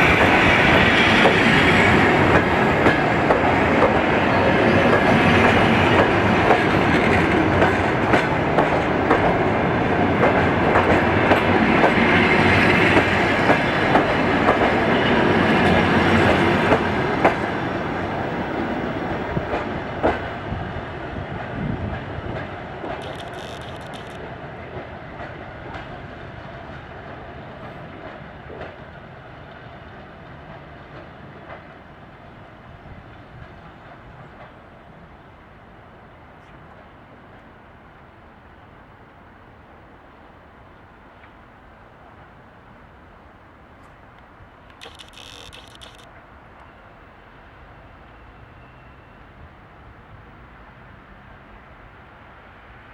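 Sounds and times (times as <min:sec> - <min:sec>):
train wheels clattering on rails: 0:00.0 - 0:35.0.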